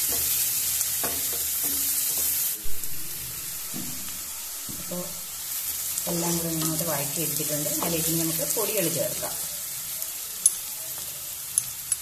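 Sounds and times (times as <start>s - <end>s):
onions sizzling in oil: 0.0s - 12.0s
sharp knock: 2.6s - 5.0s.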